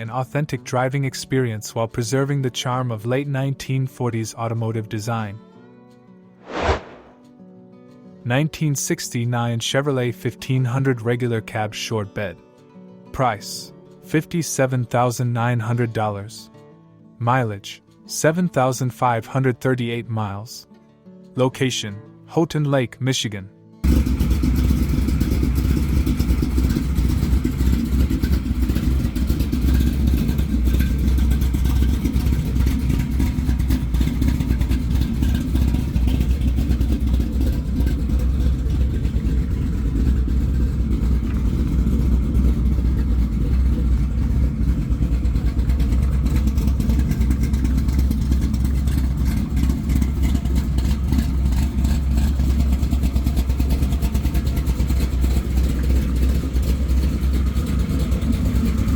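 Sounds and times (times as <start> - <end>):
pickup engine rumbling: 23.8 - 58.9.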